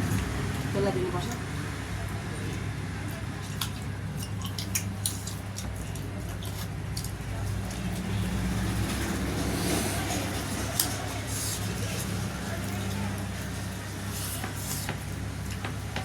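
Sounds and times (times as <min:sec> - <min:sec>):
chewing: 0:02.1 - 0:08.4.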